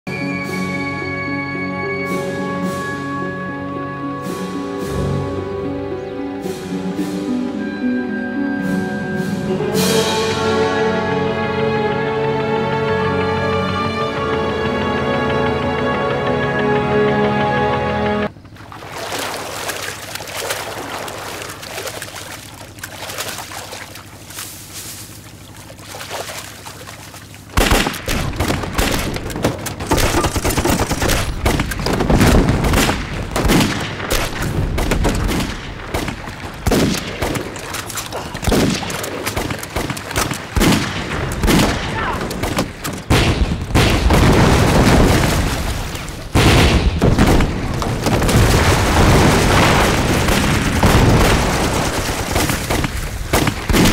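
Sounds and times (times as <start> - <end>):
rifle and machine-gun fire: 27.5 - 53.9
explosions: 40.6 - 53.9.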